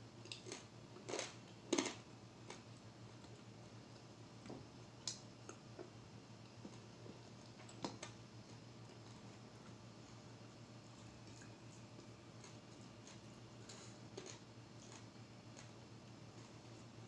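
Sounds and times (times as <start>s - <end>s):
faint low hum: 0.0s - 17.0s
eating crunches and clicks: 0.2s - 3.4s, 11.2s - 15.8s.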